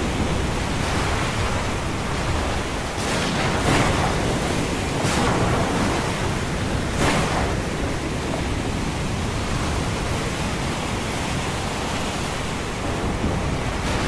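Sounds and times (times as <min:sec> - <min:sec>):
ocean surf and storm wash: 0:00.0 - 0:14.0.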